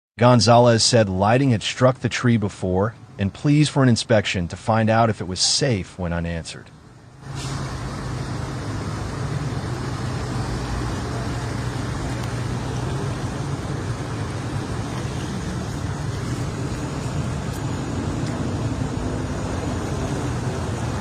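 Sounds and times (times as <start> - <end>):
vehicle engine hum: 0.5 - 21.0
rushing noise: 7.0 - 21.0.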